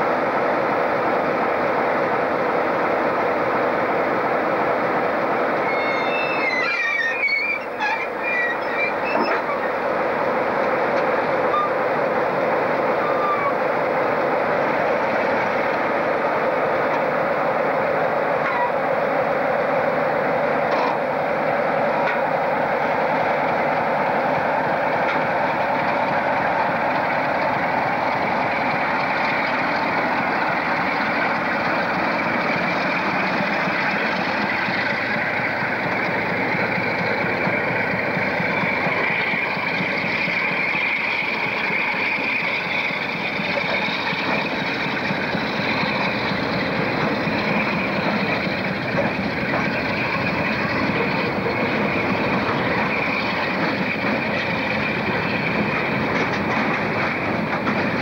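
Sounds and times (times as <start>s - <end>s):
diesel locomotive engine: 0.0s - 58.0s
freight wagons rumbling and rattling: 5.7s - 9.8s, 42.3s - 58.0s.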